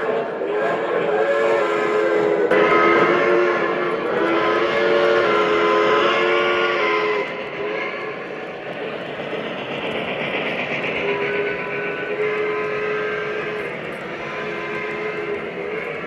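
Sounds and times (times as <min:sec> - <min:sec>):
model train running on track: 0:00.0 - 0:16.0
model train chord horn: 0:01.2 - 0:07.3, 0:12.1 - 0:16.0.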